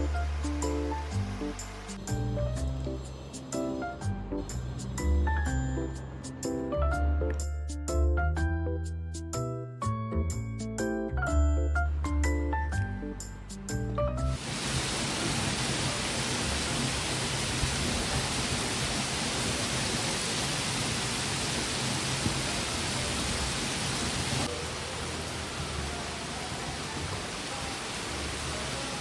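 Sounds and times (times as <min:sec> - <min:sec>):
heavy rain falling: 0:00.0 - 0:02.0, 0:14.4 - 0:29.0.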